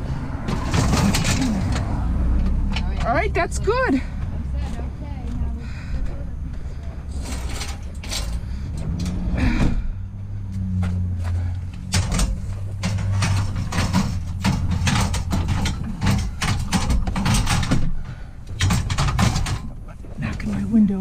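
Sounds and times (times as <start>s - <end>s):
scrap metal knocks and bangs: 0.0s - 2.9s, 6.7s - 9.9s, 10.5s - 20.4s.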